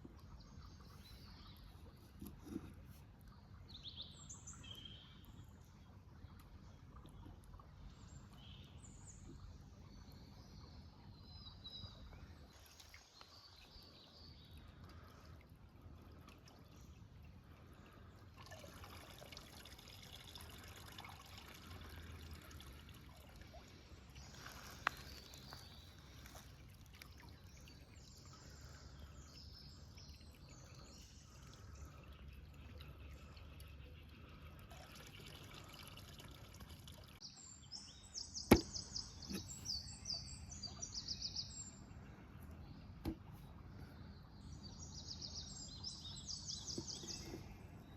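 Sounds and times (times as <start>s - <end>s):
trickling water: 0.0s - 47.9s
birds chirping: 37.2s - 47.9s.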